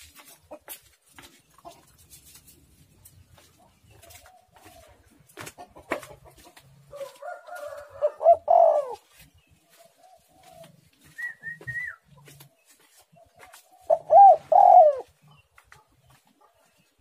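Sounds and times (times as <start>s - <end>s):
dove cooing: 7.0s - 9.2s, 9.9s - 12.0s, 13.7s - 15.2s.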